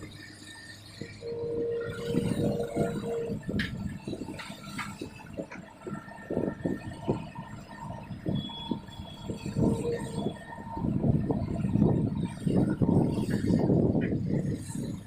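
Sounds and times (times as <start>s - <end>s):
excavator rumbling and knocking: 0.0s - 15.0s.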